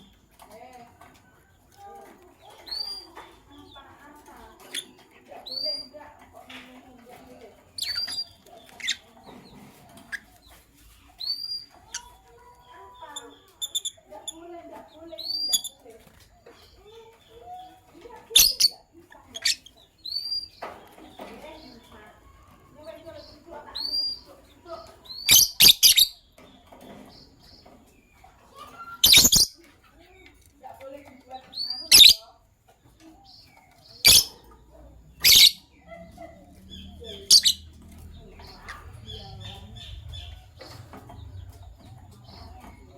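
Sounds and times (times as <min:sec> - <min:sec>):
lovebirds chirping: 0:00.0 - 0:42.9.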